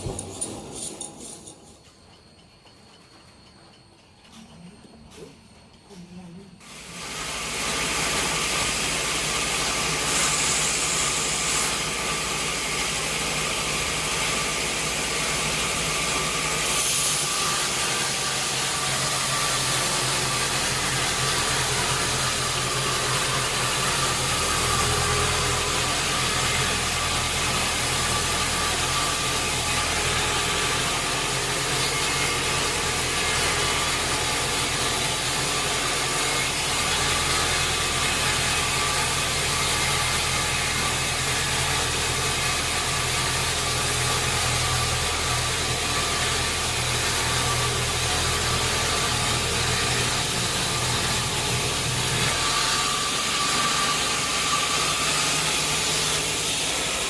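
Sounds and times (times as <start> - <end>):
sawmill machinery hum: 0.0 - 57.0.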